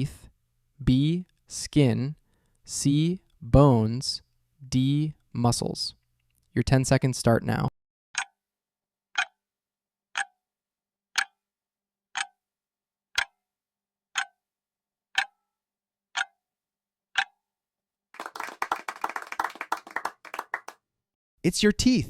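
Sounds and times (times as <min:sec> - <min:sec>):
clock ticking: 0:08.2 - 0:08.4, 0:09.2 - 0:09.4, 0:10.1 - 0:10.3, 0:11.1 - 0:11.4, 0:12.1 - 0:12.4, 0:13.2 - 0:13.4, 0:14.2 - 0:14.4, 0:15.2 - 0:15.4, 0:16.1 - 0:16.4, 0:17.2 - 0:17.4
people clapping: 0:18.2 - 0:20.8.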